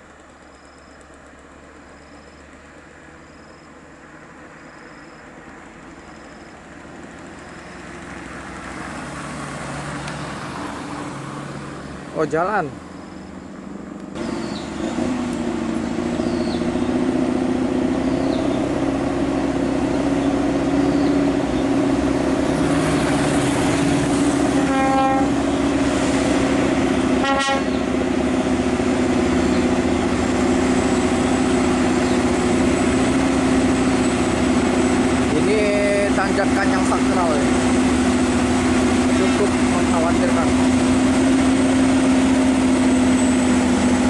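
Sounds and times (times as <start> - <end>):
truck diesel engine droning: 0.0 - 44.0
horn toots: 24.2 - 25.7, 27.1 - 27.9.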